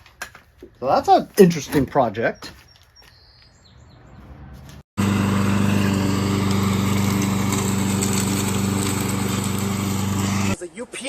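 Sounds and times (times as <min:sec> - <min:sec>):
lawn mower engine running: 0:05.0 - 0:10.6.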